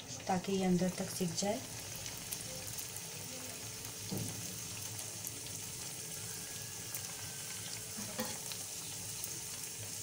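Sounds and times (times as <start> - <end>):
dough frying in hot oil: 0.0 - 10.0
small crackles of oil: 0.1 - 10.0.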